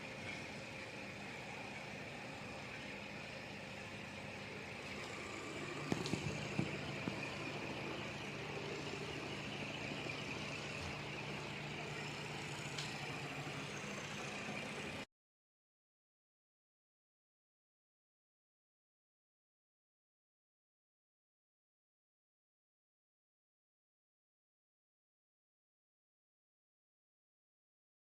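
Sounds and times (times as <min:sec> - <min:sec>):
ceiling fan whirring: 0:00.0 - 0:15.1.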